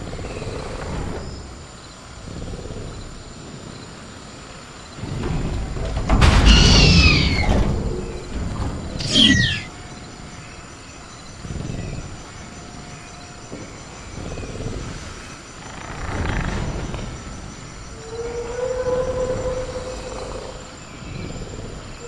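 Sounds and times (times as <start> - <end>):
crickets chirring: 0.0 - 22.0
low rumbling growls: 2.1 - 4.0, 14.0 - 22.0
raptor shriek: 6.4 - 7.6, 9.0 - 9.7.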